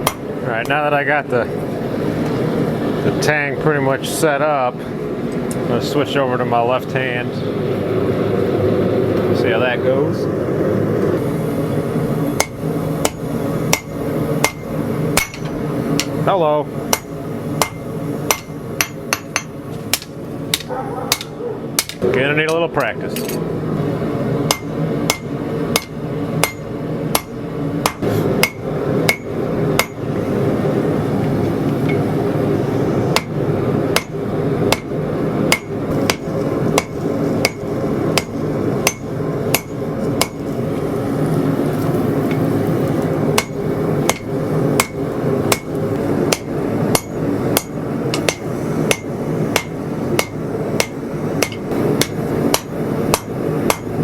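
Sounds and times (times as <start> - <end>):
hammer striking steel on anvil: 0.0 - 0.8, 12.4 - 16.2, 16.9 - 23.4, 24.5 - 30.0, 33.1 - 33.4, 34.0 - 34.9, 35.5 - 40.4, 43.4 - 54.0
background hum: 0.0 - 54.0.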